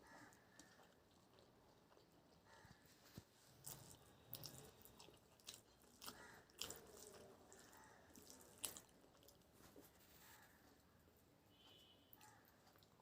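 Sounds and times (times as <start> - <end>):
person chewing food: 0.0 - 11.0, 11.6 - 13.0.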